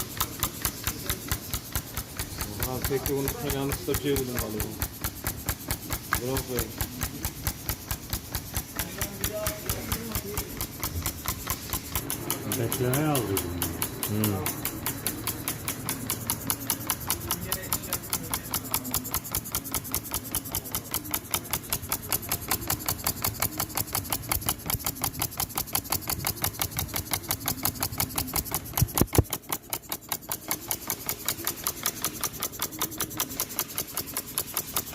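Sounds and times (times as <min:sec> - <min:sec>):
compressed-air engine beating: 0:00.0 - 0:34.9.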